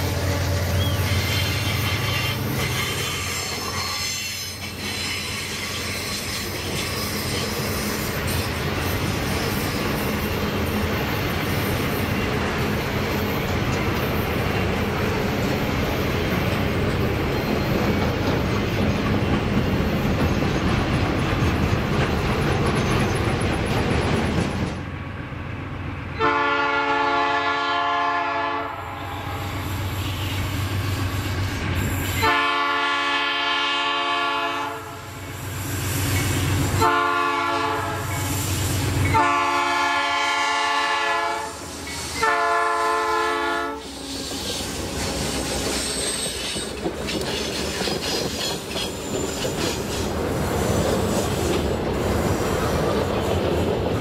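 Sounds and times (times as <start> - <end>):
train wheels rumbling on rail: 0.0 - 54.0
locomotive horn blasts: 26.2 - 30.4, 32.2 - 35.1, 36.8 - 38.2, 39.1 - 41.6, 42.2 - 43.8.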